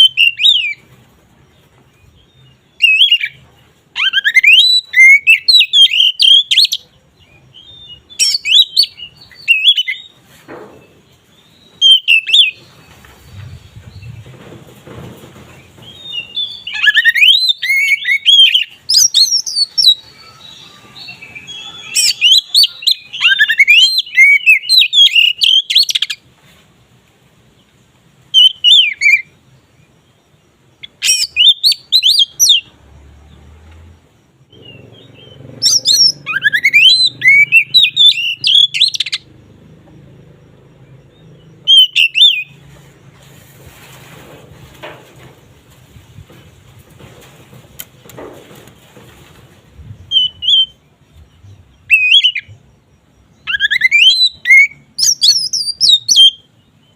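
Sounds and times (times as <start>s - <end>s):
bird singing whistled phrases: 0.0s - 0.8s, 4.0s - 6.8s, 16.1s - 26.2s, 30.9s - 32.7s, 34.5s - 39.2s, 41.6s - 42.6s, 50.0s - 50.8s, 51.8s - 52.6s, 53.4s - 56.5s.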